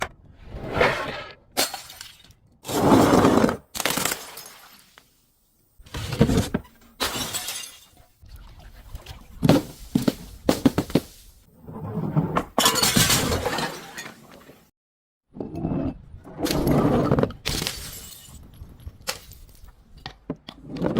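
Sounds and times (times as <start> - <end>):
glass bottles shattering: 3.8 - 5.0, 7.0 - 8.0, 12.6 - 14.3, 17.5 - 18.4.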